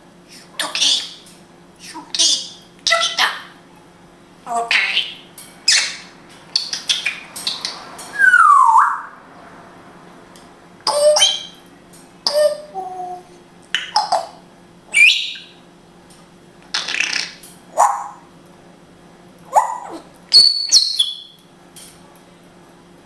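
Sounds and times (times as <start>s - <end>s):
parrot calls and whistles: 5.1s - 9.2s, 10.9s - 11.6s, 12.2s - 13.2s, 13.8s - 15.6s, 19.5s - 21.4s.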